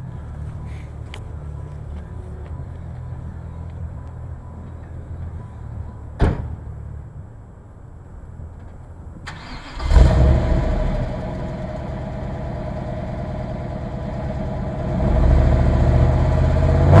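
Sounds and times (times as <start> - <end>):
loud thump: 6.2 - 6.7
car engine idling: 9.3 - 17.0.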